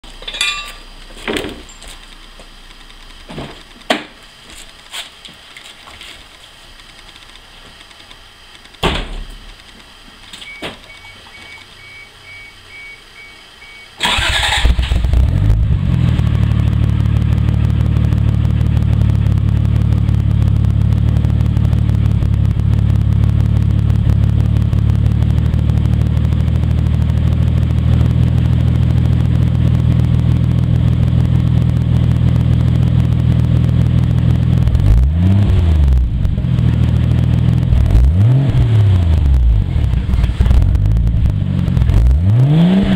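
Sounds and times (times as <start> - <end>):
car engine starting and idling: 8.3 - 42.9
faint steady beep: 10.4 - 14.0
engine revving: 14.0 - 42.9.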